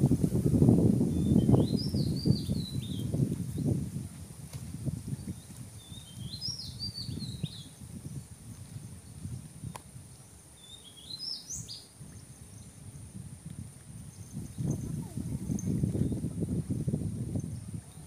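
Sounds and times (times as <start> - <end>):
bird chirping: 5.8 - 7.7, 10.6 - 11.9.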